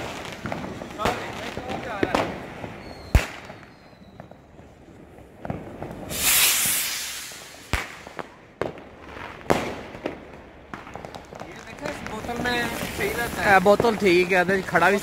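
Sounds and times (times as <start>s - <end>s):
firecracker bangs: 0.0s - 4.3s, 5.4s - 8.8s
firework rocket whoosh: 5.4s - 8.4s, 11.9s - 15.0s.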